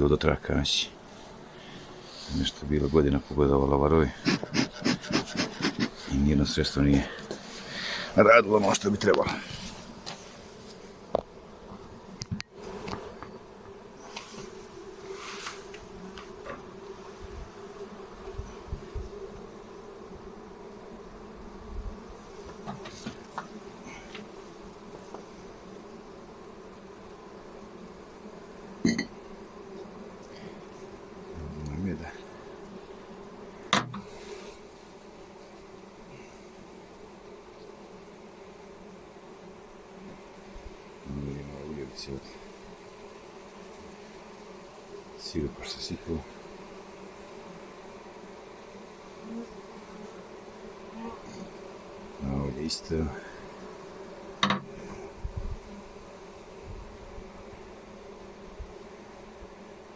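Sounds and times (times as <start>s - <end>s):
bees buzzing: 0.0s - 59.9s
brief rustle: 15.2s - 16.3s.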